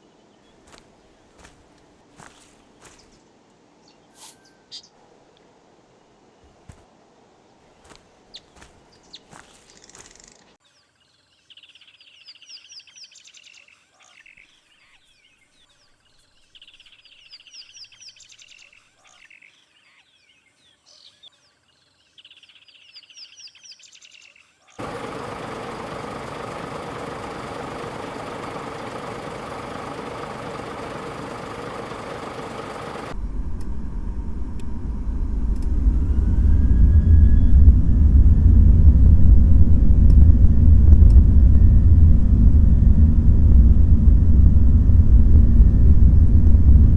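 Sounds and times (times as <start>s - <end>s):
low rumble: 24.8s - 46.9s.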